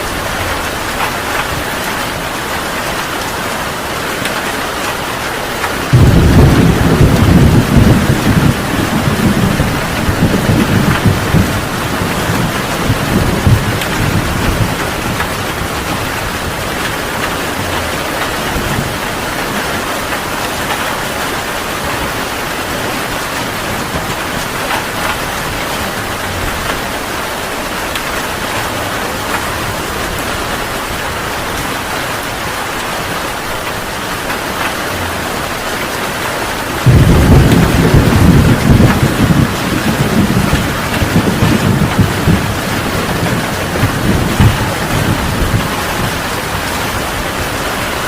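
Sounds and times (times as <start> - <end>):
heavy rain: 0.0 - 48.0
thunder rumbling: 4.3 - 48.0.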